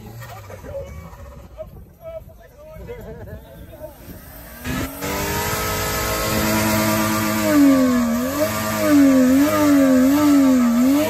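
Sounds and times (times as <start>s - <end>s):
car engine revving high: 4.2s - 11.0s.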